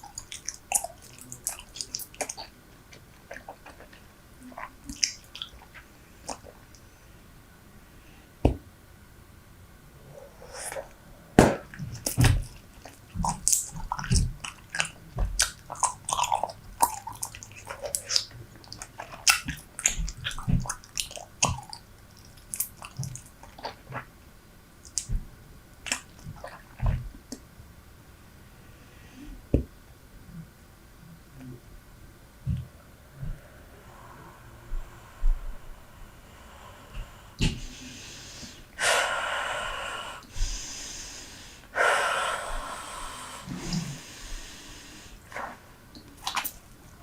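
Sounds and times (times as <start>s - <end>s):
chewing gum wet smacks: 0.0s - 6.8s, 11.6s - 24.1s, 24.8s - 25.2s, 25.8s - 27.4s, 45.3s - 46.7s.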